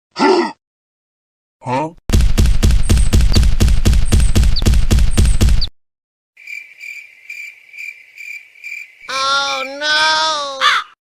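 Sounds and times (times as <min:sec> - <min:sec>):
loud fast pounding: 0:02.1 - 0:05.7
crickets chirping: 0:06.4 - 0:09.8.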